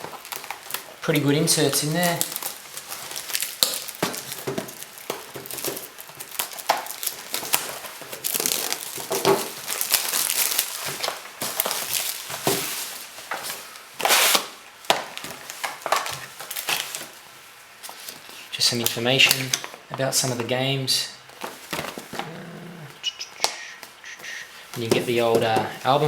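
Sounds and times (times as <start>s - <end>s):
packaging crinkling and rustling: 0.0s - 26.0s.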